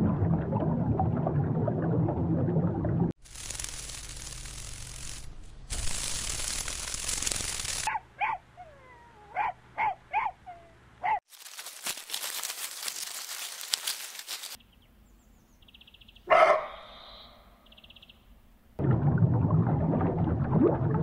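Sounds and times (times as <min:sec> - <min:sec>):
crackly noise: 0:03.2 - 0:07.9, 0:11.3 - 0:14.6
dog yelping: 0:07.9 - 0:11.2, 0:16.3 - 0:16.8.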